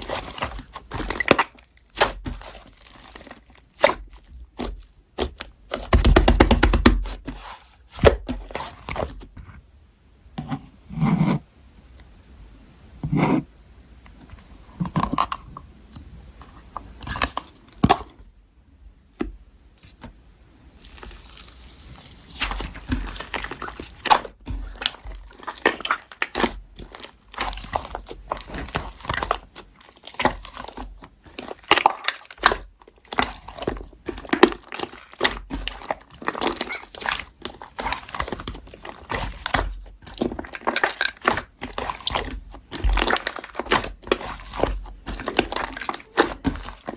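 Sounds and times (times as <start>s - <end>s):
slime squishing and crackling: 0.0s - 9.2s, 20.8s - 46.9s.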